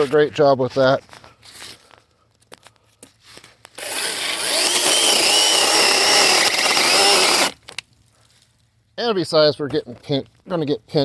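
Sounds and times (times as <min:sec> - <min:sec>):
chainsaw whining: 0:03.8 - 0:07.6.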